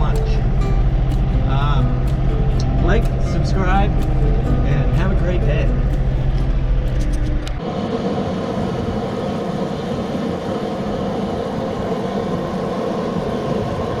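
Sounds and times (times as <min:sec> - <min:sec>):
tractor diesel engine running: 0:00.0 - 0:07.6.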